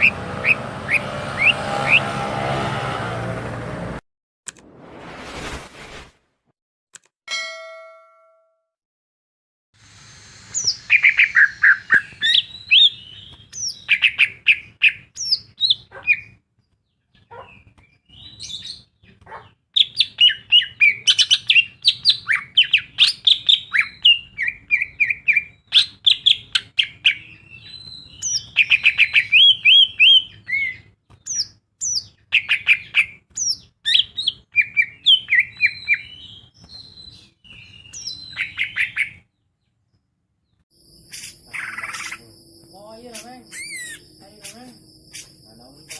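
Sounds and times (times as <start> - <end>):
bird singing fast varied song: 0.0 - 2.0, 10.2 - 39.6, 40.8 - 45.9.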